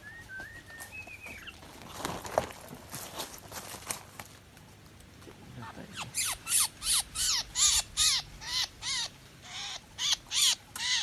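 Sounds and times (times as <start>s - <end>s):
bird calling in short pitched calls: 6.0s - 11.0s.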